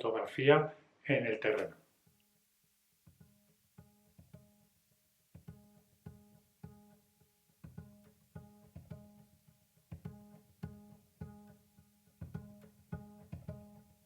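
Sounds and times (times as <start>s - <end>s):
plucked strings music: 3.0s - 4.7s, 5.3s - 14.0s.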